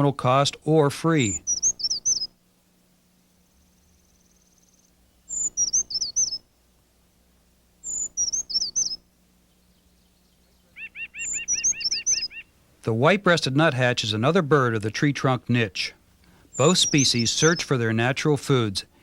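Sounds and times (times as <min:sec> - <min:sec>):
small songbird singing: 0:01.2 - 0:02.4, 0:03.1 - 0:06.5, 0:07.8 - 0:12.6, 0:16.2 - 0:18.0.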